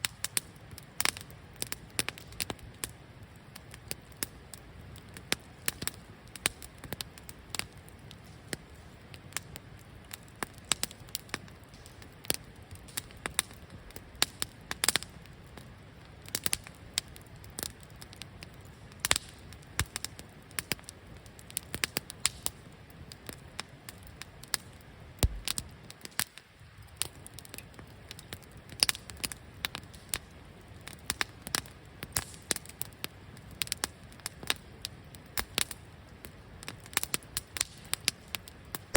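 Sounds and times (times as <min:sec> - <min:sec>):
faint steady hiss: 0:00.0 - 0:28.7
campfire crackling and popping: 0:00.0 - 0:38.9
low thud: 0:25.2 - 0:25.6.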